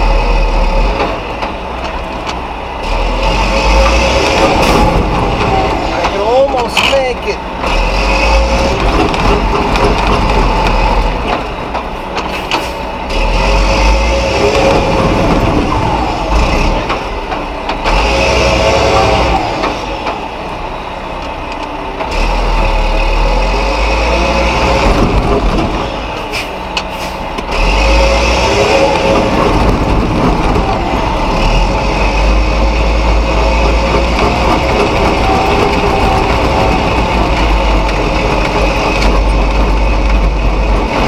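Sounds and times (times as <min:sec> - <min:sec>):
diesel truck engine straining: 0:00.0 - 0:41.0
knocks and rattles: 0:08.3 - 0:12.8, 0:24.6 - 0:26.2, 0:28.7 - 0:41.0.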